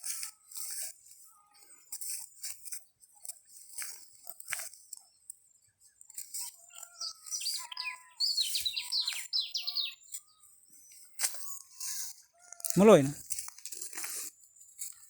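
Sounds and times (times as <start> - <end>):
small bird chirping: 3.9 - 12.8.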